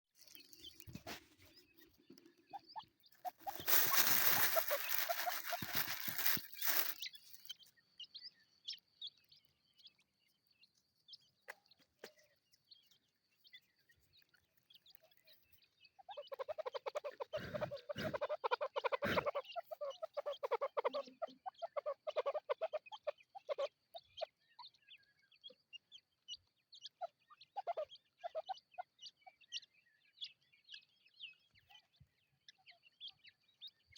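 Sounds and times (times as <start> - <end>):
partridge clucking calls: 0.2 - 7.6, 15.9 - 24.7, 26.8 - 29.2
chicks chirping: 0.2 - 12.1, 12.9 - 29.7
rustling noise: 3.2 - 7.5.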